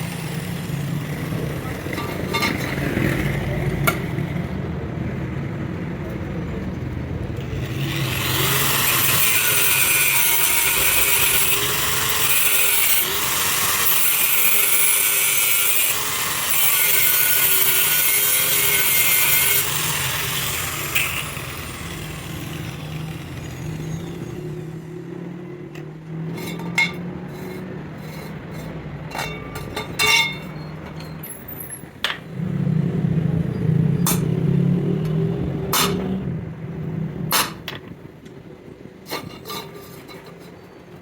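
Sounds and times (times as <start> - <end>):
tool scraping metal: 0.0 - 2.9, 7.4 - 24.8, 26.2 - 31.9, 39.0 - 40.8.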